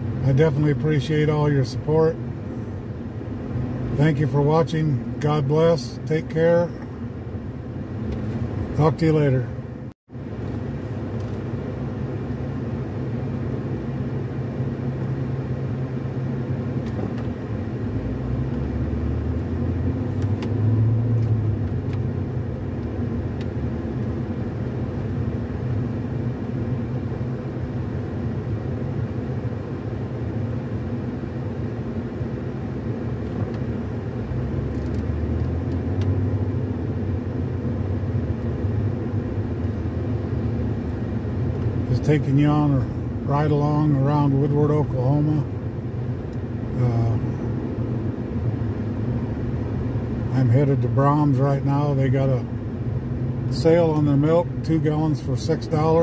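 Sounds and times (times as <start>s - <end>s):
road and engine noise in car: 0.0s - 56.0s.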